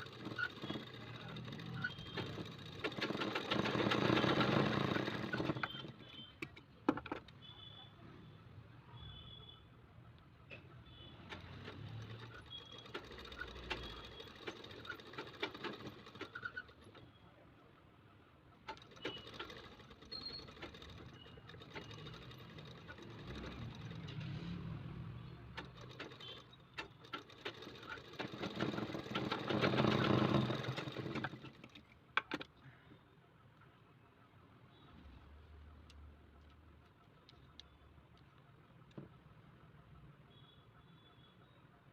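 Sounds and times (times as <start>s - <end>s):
sewing machine stitching: 0.0s - 6.6s, 11.1s - 17.1s, 18.6s - 32.5s.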